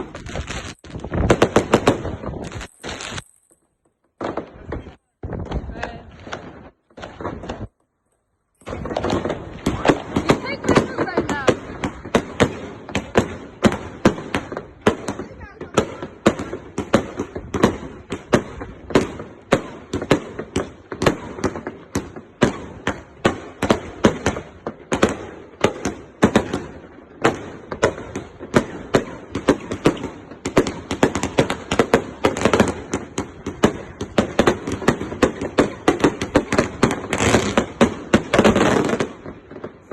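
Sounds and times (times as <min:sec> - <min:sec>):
firework crackling and bangs: 0:00.0 - 0:39.9
firework cake firing shots: 0:08.6 - 0:39.9.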